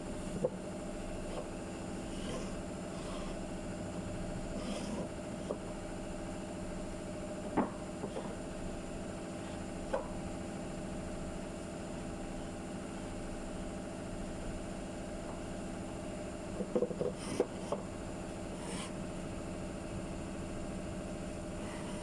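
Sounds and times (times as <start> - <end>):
motor humming: 0.0 - 10.2, 16.6 - 19.7, 20.4 - 22.0.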